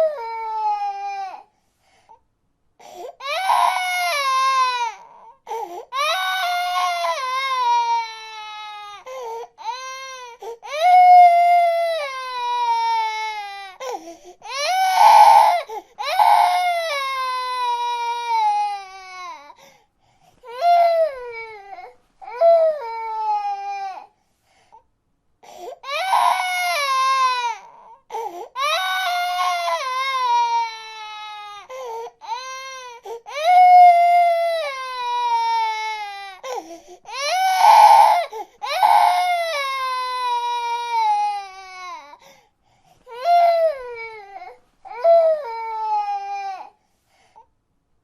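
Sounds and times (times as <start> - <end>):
baby crying: 0.0 - 1.5, 2.9 - 19.6, 20.4 - 24.1, 25.5 - 42.2, 43.1 - 46.8.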